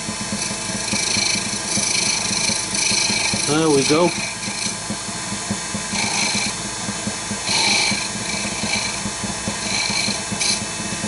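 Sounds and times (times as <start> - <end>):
wood lathe humming: 0.0 - 11.0
turning tool scraping wood: 0.4 - 4.8, 5.9 - 6.6, 7.4 - 10.6.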